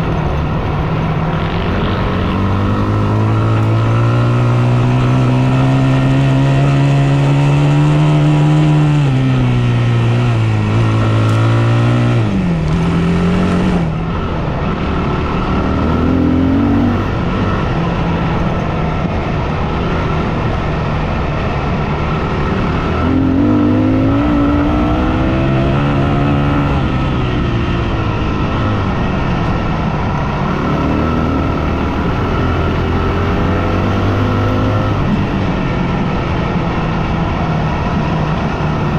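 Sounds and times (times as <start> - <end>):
dirt bike engine revving: 0.0 - 18.6, 21.7 - 27.5, 29.9 - 35.3
wind and tyre noise: 0.0 - 38.9.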